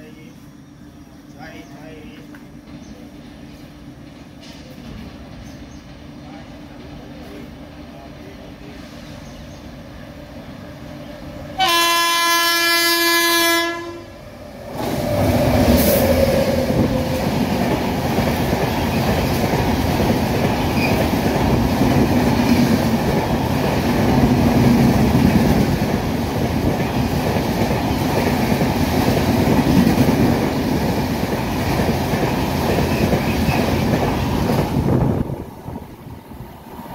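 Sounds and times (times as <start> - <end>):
train wheels rumbling on rails: 0.8 - 12.4, 13.0 - 36.9
locomotive horn: 11.6 - 14.1.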